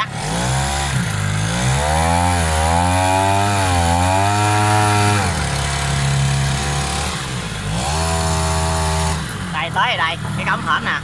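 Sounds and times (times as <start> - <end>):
two-stroke boat engine: 0.0 - 11.0.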